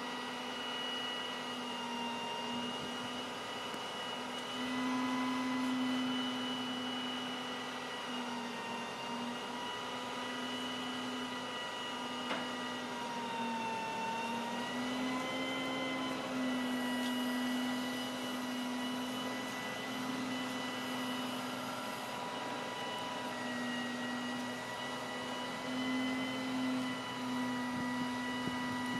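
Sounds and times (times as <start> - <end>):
truck hydraulics whining: 10.2 - 28.9.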